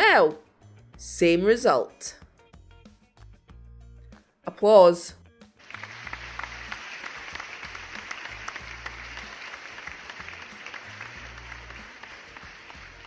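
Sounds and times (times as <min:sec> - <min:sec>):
soft background music with bass: 0:00.0 - 0:13.0
crowd clapping: 0:05.6 - 0:13.0.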